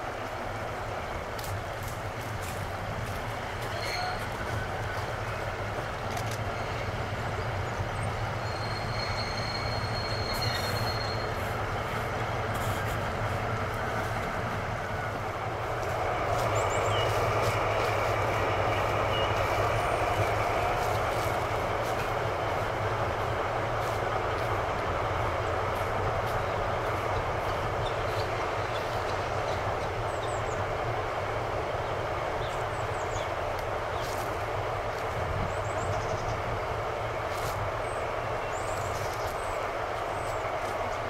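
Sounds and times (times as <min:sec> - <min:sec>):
locomotive engine drone: 0:00.0 - 0:41.0
faint wheel squeal: 0:03.7 - 0:04.3, 0:08.4 - 0:11.5.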